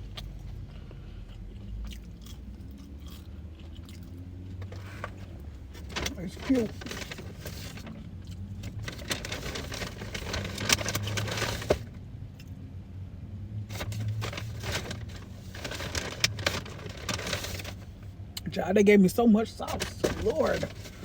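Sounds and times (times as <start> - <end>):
chewing: 0.0 - 5.0
paper wrapper crinkling: 4.6 - 11.9, 13.7 - 18.0, 19.6 - 21.0.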